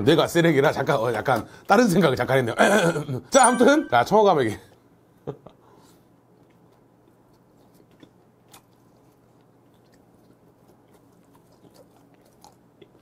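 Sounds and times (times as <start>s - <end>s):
low steady hum: 2.5s - 13.0s
close chewing: 6.3s - 13.0s.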